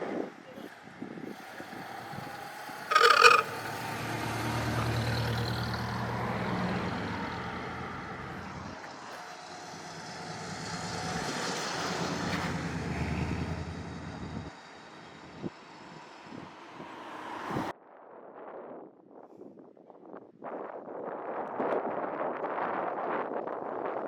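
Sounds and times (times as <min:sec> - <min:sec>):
loud high-pitched sound: 0:02.9 - 0:03.9.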